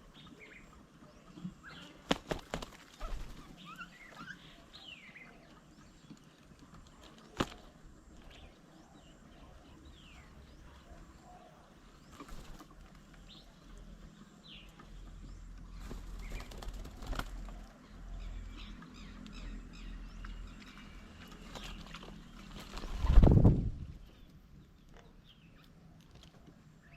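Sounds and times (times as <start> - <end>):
birds chirping: 0.0 - 26.9
wings fluttering: 1.6 - 4.5, 6.1 - 8.3, 12.0 - 13.2, 15.7 - 17.8, 21.2 - 24.1.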